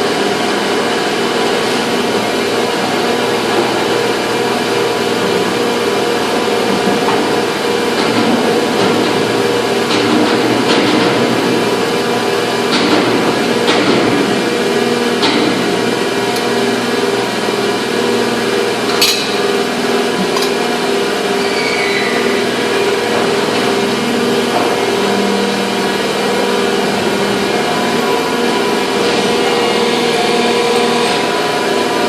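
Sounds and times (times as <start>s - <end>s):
factory machinery humming: 0.0s - 32.0s.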